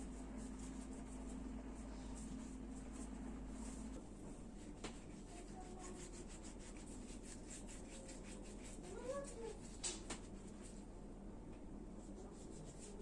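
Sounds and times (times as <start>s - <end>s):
faint scrubbing strokes: 0.1s - 9.7s.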